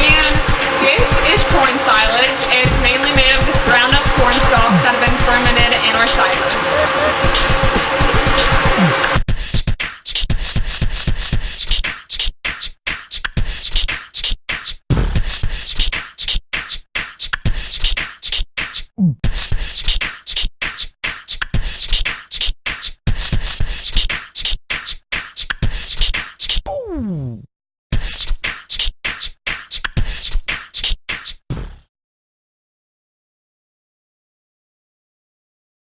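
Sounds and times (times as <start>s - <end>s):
falling pitch sweeps: 0.0s - 9.2s
fast choppy percussive beat: 0.0s - 27.0s, 28.0s - 31.4s.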